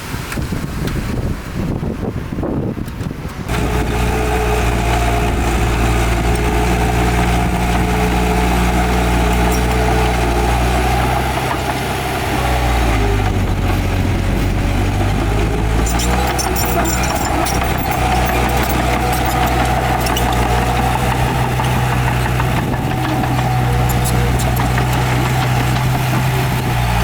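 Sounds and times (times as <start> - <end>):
heavy diesel engine running: 3.4 - 27.0
light clatter: 13.2 - 26.3.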